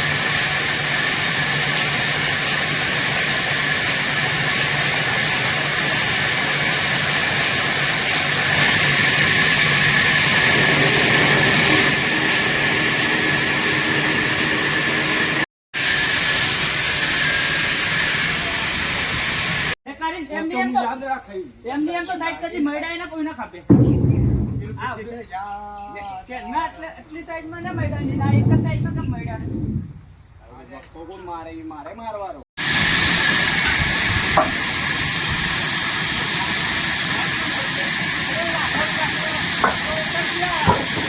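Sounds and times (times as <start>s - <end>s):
sawmill saw whining: 0.0s - 19.8s, 32.6s - 41.0s.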